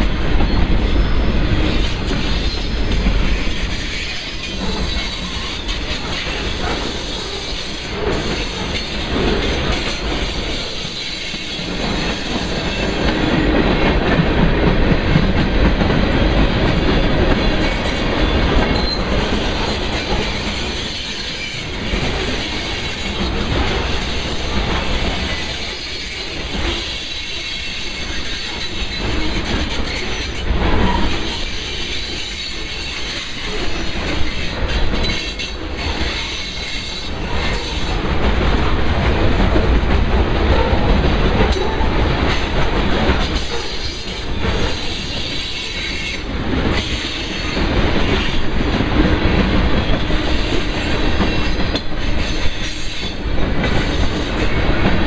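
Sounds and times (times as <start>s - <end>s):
freight train rumbling past: 0.0s - 55.0s
wheels clacking over rail joints: 0.0s - 55.0s.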